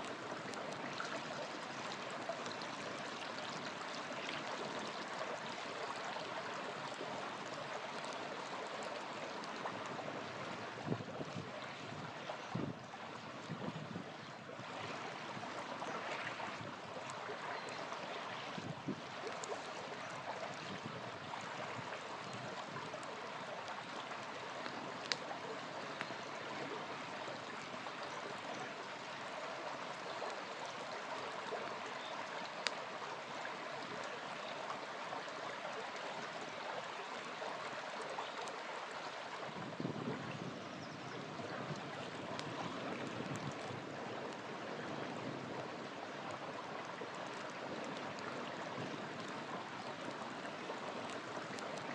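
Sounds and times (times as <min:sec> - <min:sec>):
small river flowing: 0:00.0 - 0:51.9
campfire crackling pops: 0:21.4 - 0:26.6, 0:32.5 - 0:32.8, 0:41.7 - 0:44.4.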